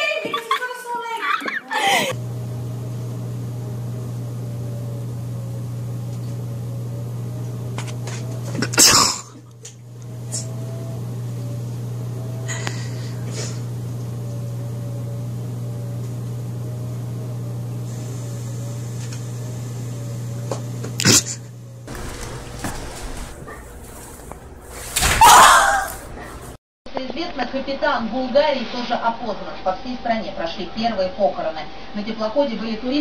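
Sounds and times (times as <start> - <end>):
mechanical hum: 0.9 - 26.6
loud burst of noise: 21.9 - 24.7.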